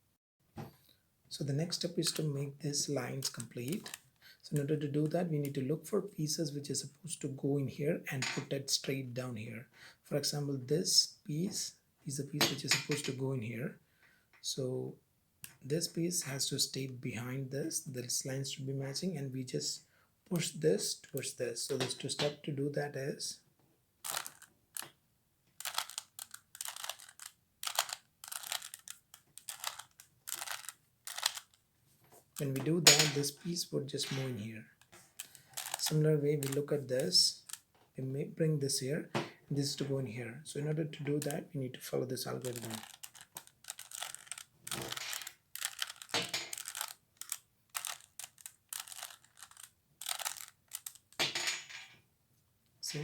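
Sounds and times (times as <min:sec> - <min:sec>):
puzzle cube turning clicks: 0:03.2 - 0:04.2, 0:24.0 - 0:24.9, 0:25.6 - 0:31.6, 0:34.8 - 0:37.7, 0:41.2 - 0:41.4, 0:42.4 - 0:51.2.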